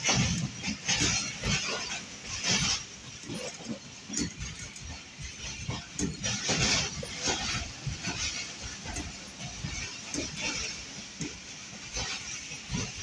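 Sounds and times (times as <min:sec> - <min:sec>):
rushing clatter: 0:00.0 - 0:13.0
train wheels rumbling on rails: 0:00.0 - 0:13.0.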